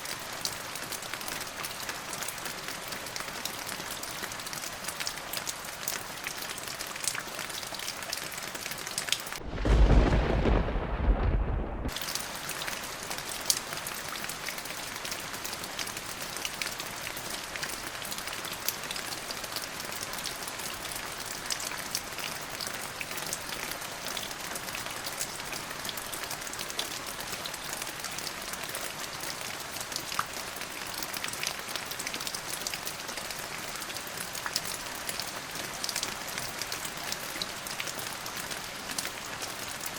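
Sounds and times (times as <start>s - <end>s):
steady rain: 0.0s - 39.9s
thunder clap and rumble: 9.4s - 12.0s.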